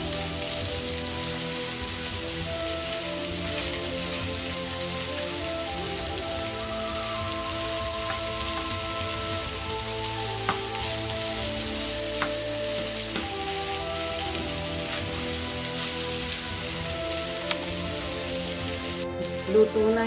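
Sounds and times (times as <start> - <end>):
meat sizzling in a frying pan: 0.0 - 19.9
utensil tapping on pan: 13.1 - 13.3.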